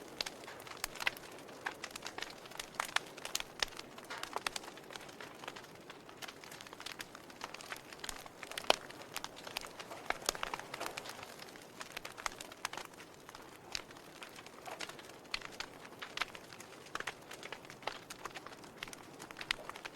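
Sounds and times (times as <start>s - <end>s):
campfire crackling and popping: 0.0s - 19.9s.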